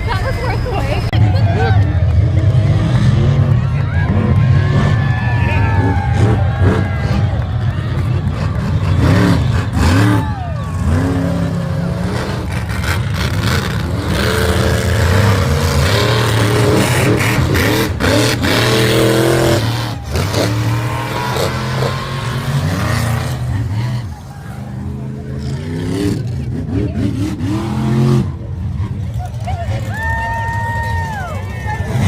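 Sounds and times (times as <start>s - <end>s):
monster truck engines revving: 0.0s - 32.0s
noisy arena background: 0.0s - 32.0s.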